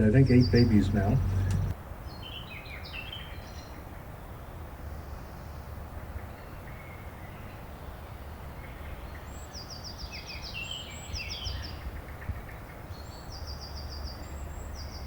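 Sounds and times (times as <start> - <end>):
low steady rumble: 0.0 - 1.7
small birds singing: 0.0 - 15.0.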